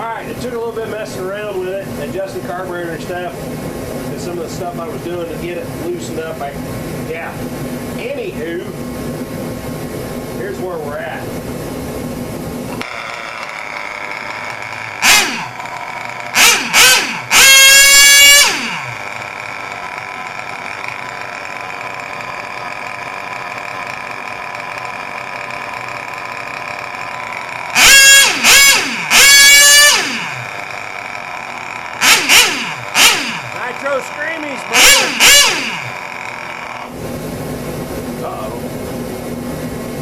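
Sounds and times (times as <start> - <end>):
small engine revving: 12.7 - 37.0.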